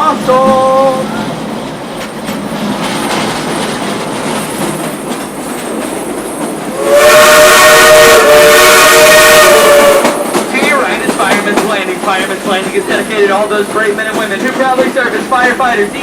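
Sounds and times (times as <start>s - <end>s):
train running noise: 0.0s - 16.0s
steam locomotive whistle: 6.7s - 10.4s.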